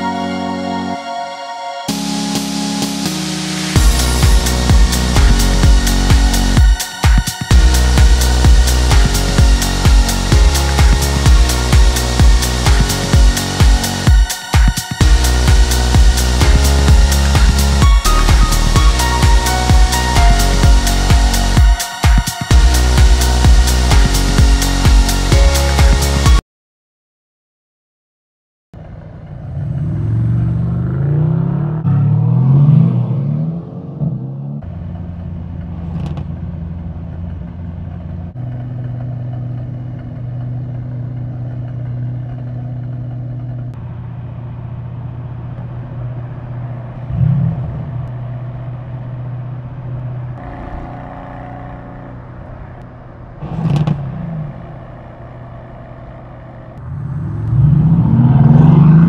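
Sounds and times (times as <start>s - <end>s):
car engines revving: 28.8s - 59.0s.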